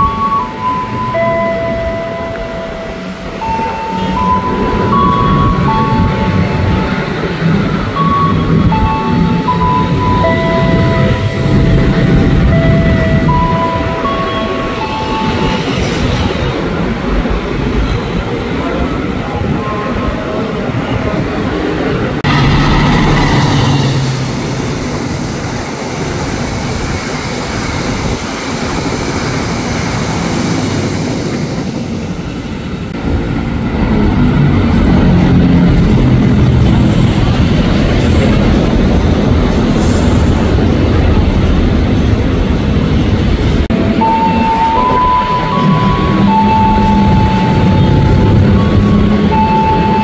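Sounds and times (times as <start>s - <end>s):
two-note train horn: 0.0s - 7.0s
train rumbling on tracks: 0.0s - 50.0s.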